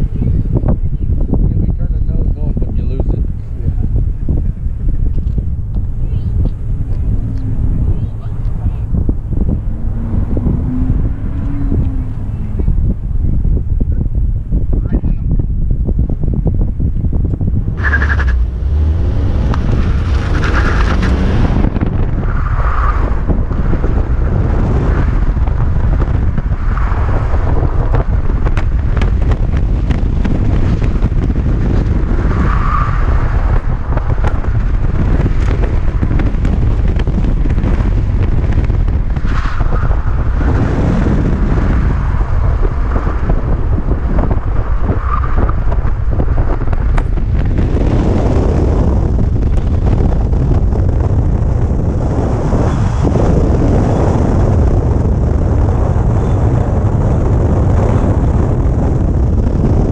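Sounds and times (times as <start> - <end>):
road noise: 0.0 - 59.9
car engine under load: 2.5 - 14.8, 15.4 - 59.9.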